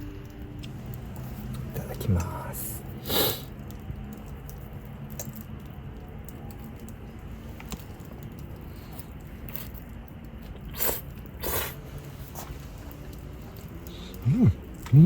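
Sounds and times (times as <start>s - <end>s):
sharp breaths through congested nose: 3.0s - 3.5s.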